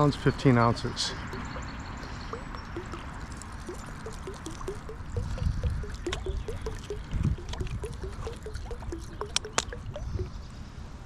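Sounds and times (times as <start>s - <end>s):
creek water trickling: 0.0s - 10.6s
sharp clicks: 1.2s - 10.4s
short low blips: 2.3s - 10.4s.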